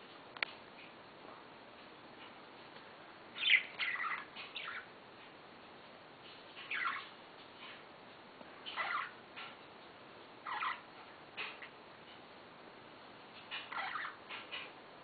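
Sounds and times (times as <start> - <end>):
budgerigars chirping: 3.4 - 4.9, 6.6 - 7.1, 8.6 - 9.2, 10.4 - 11.8, 13.5 - 14.7.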